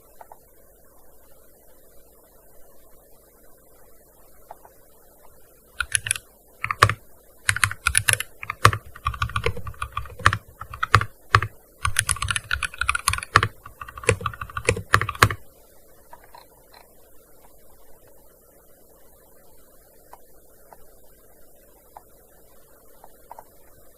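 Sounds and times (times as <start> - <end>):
keyboard key clicks: 5.8 - 15.4.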